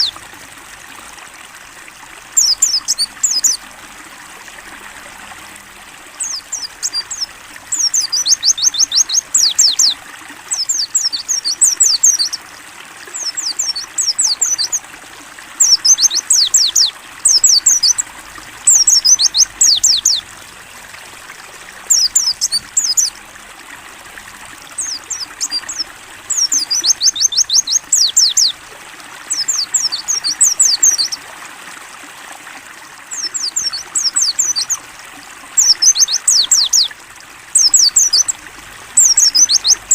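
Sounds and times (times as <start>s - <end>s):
trickle of running water: 0.0s - 39.9s
white-eye bird singing: 2.4s - 3.6s, 6.2s - 12.4s, 13.1s - 14.8s, 15.6s - 20.2s, 21.8s - 23.2s, 24.7s - 28.6s, 29.2s - 31.2s, 33.1s - 34.8s, 35.5s - 36.9s, 37.5s - 38.4s, 39.0s - 39.9s.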